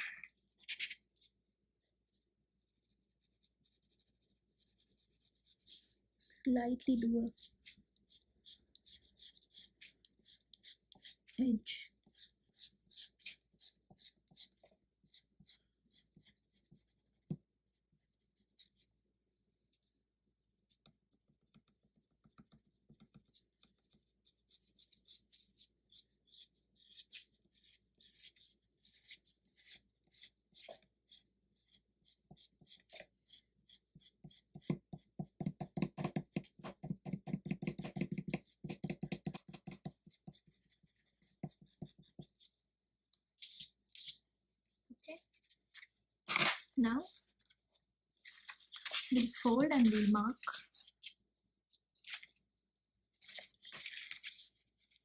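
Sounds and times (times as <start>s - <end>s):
rubbing strokes on card paper: 0.6s - 6.4s, 7.3s - 37.0s.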